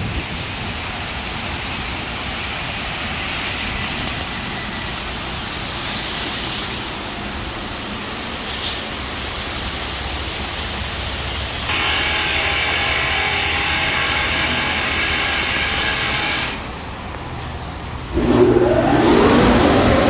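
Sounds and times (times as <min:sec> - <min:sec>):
blower motor whining: 0:18.1 - 0:20.0
whining pump motor: 0:18.2 - 0:20.0.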